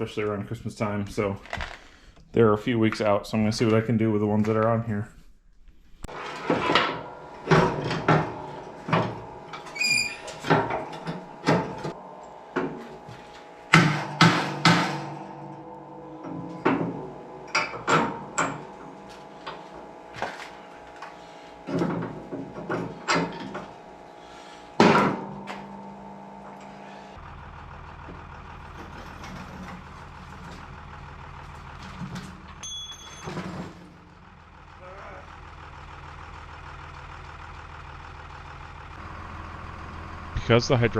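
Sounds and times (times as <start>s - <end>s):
truck engine idling: 6.0s - 40.9s
sharp metal clanks and knocks: 6.1s - 23.8s, 24.8s - 27.2s.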